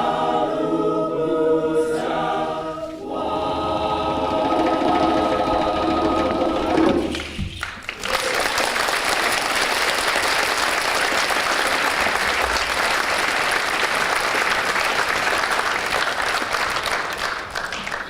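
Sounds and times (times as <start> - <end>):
choir holding a chord: 0.0 - 7.1
audience applauding: 7.0 - 18.0.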